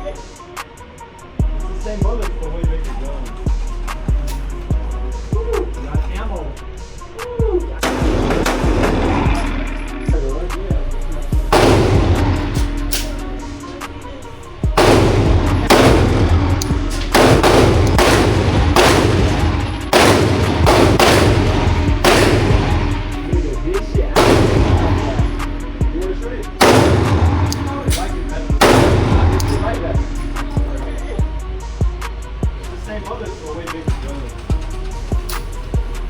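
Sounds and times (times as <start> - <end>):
pistol shots echoing: 7.8 - 10.0, 11.5 - 31.0.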